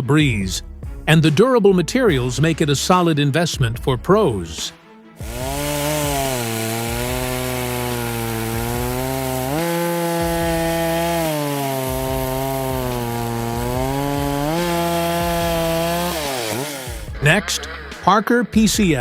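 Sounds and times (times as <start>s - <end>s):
chainsaw cutting wood: 5.2s - 17.2s.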